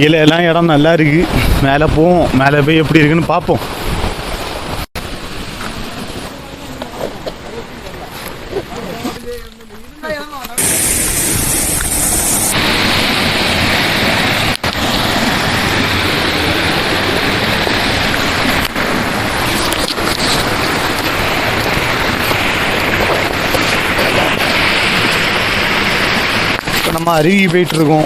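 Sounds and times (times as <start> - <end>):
waterfall over rocks: 10.6 - 28.0.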